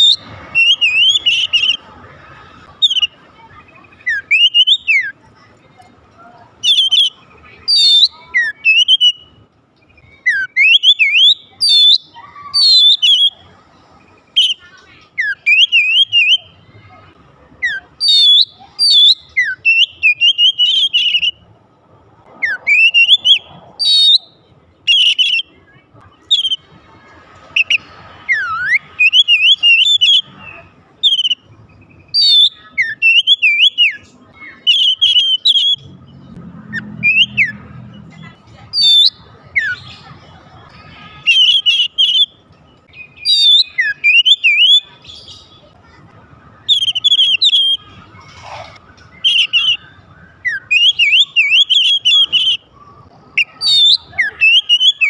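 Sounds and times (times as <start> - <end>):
bird singing whistled phrases: 0.0 - 1.9, 2.8 - 5.2, 6.6 - 13.4, 14.3 - 16.6, 17.6 - 21.4, 22.4 - 26.7, 27.6 - 37.6, 38.2 - 40.1, 40.7 - 45.7, 46.6 - 48.0, 48.9 - 52.7, 53.4 - 55.0.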